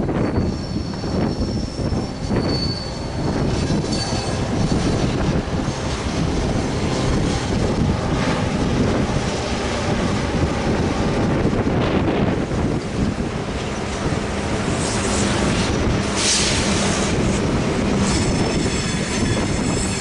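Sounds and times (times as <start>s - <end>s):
high-pitched wheel squeal: 0.0s - 5.4s, 14.8s - 20.0s
train engines and wheels rumbling: 0.0s - 20.0s.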